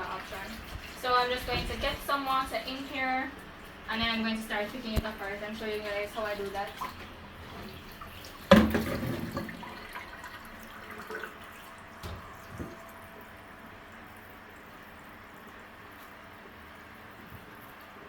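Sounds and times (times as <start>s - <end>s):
tap water running into a pot: 0.0s - 18.0s
knocks in sink: 8.5s - 9.6s, 12.0s - 12.8s.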